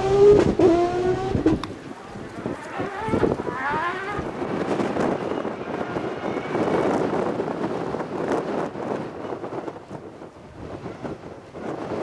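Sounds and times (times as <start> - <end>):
rally car engine driving past: 0.0 - 8.5
wind on microphone: 0.0 - 12.0.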